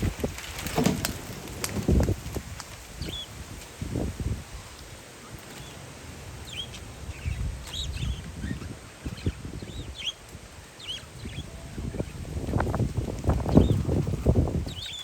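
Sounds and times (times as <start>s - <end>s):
wind buffeting microphone: 0.0s - 15.0s
parakeets chirping: 6.4s - 12.2s.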